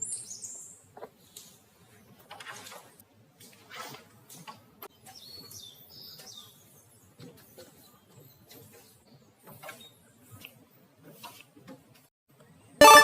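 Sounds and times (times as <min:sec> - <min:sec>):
birds chirping: 0:04.9 - 0:10.2.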